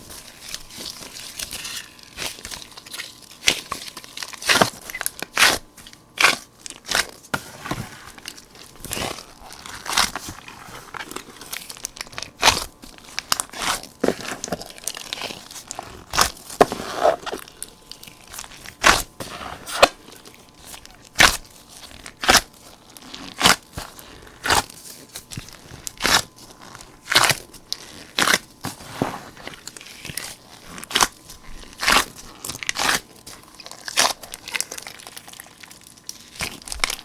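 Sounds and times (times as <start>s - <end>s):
slime squishing: 0.0s - 37.0s
slime popping and crackling: 7.9s - 37.0s.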